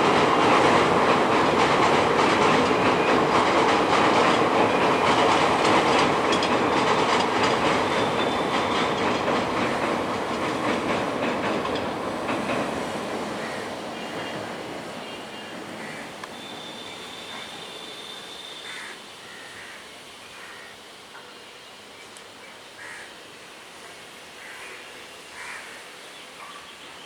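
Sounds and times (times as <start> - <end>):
train wheels clattering over rail joints: 0.0 - 18.4.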